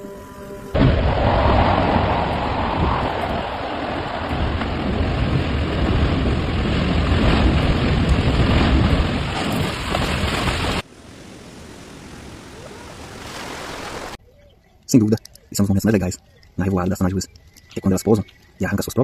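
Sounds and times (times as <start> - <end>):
loud rushing water: 0.8 - 14.2.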